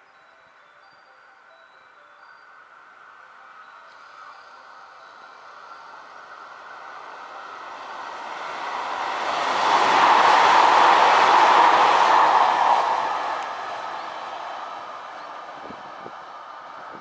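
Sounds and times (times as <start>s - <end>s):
electric train passing: 2.9s - 17.0s.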